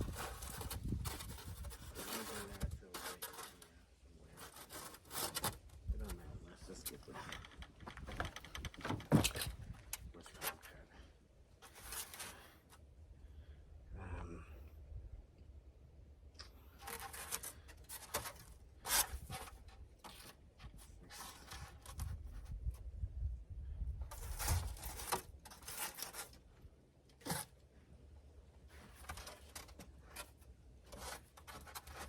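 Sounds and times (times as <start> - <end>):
scraping and tearing strokes: 0.0 - 7.0, 11.6 - 12.8, 16.7 - 22.6, 24.1 - 27.6, 28.6 - 32.0.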